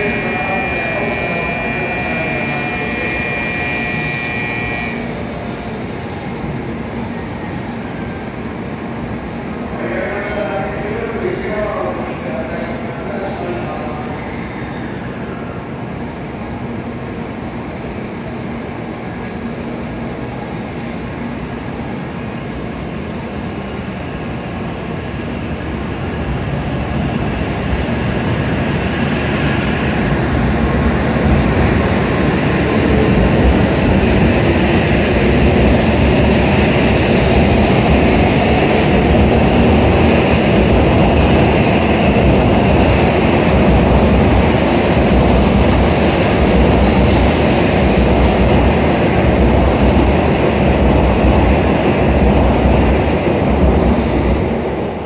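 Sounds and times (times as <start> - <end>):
train pulling out: 0.0 - 8.2, 26.1 - 55.0.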